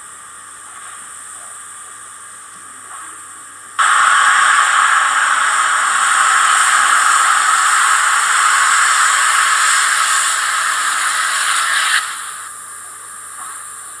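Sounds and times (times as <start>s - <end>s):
loud steady hiss from small loudspeaker: 0.0s - 14.0s.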